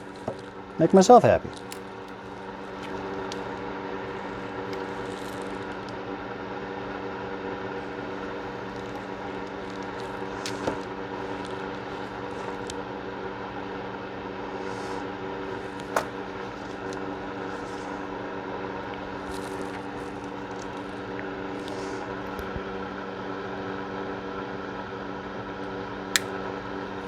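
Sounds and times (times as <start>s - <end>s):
space heater humming: 0.0s - 27.0s.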